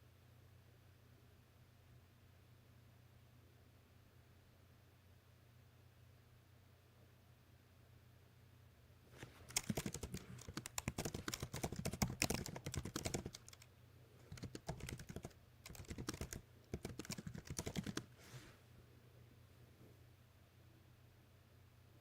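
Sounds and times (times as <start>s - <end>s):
typing on computer keyboard: 9.4s - 18.1s.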